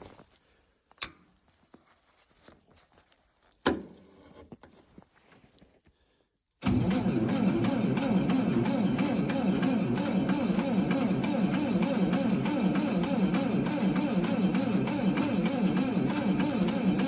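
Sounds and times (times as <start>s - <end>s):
engine cranked by starter: 6.6s - 17.0s.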